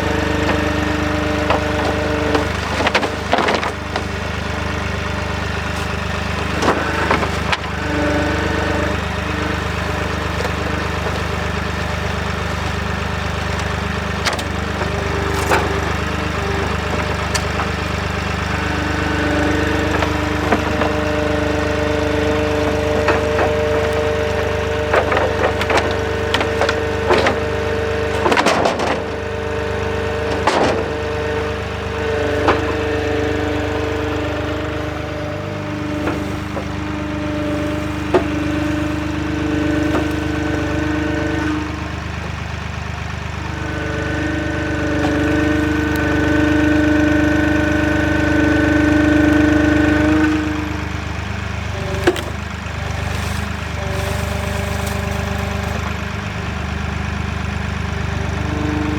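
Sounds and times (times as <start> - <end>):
diesel engine running under load: 0.0 - 58.9
hydraulic whine: 0.0 - 58.9
wood debris cracking in bucket: 0.0 - 58.9.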